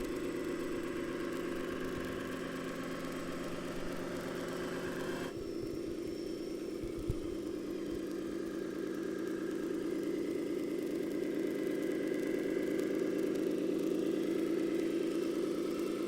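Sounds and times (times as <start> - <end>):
simulated diesel engine idling: 0.0 - 11.9.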